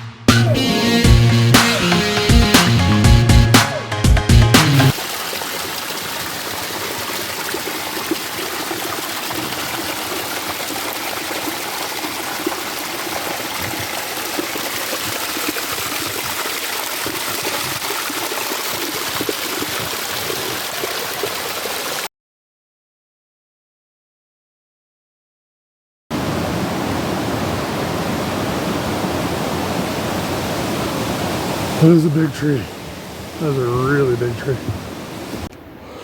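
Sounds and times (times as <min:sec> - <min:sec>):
creek rushing: 0:04.6 - 0:22.1, 0:26.1 - 0:36.0.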